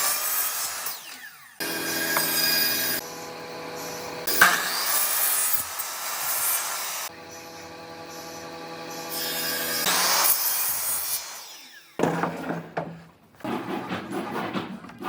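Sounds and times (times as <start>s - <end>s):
power tool cutting wood: 0.0s - 12.0s.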